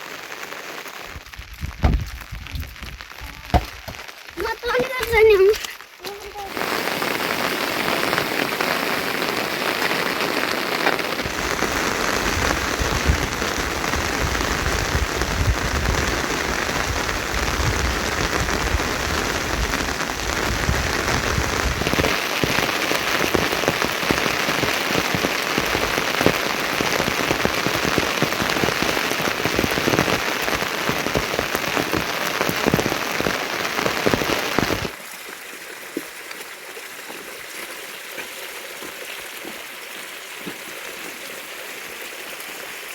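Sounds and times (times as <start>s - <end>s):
heavy rain falling: 0.0s - 35.4s.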